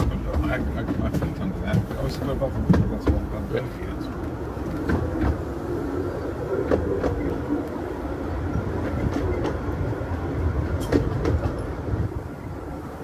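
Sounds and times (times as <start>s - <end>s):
rumble of wheels on rail: 0.0s - 13.0s
wheels clicking over rail joints: 0.0s - 13.0s.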